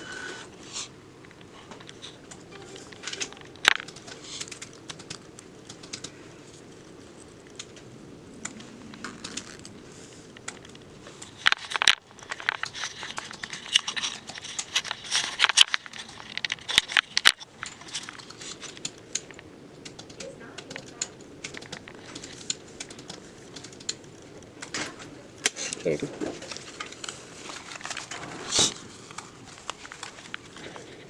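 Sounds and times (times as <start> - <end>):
rustling and crinkling: 0.1 - 19.5, 21.6 - 31.0
sharp clicks: 1.2 - 24.8.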